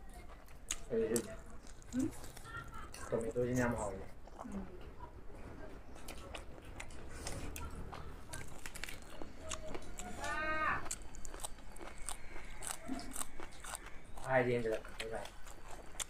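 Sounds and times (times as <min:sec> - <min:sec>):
chewing: 0:00.0 - 0:05.1, 0:05.7 - 0:16.0
crunchy bites: 0:08.3 - 0:16.0.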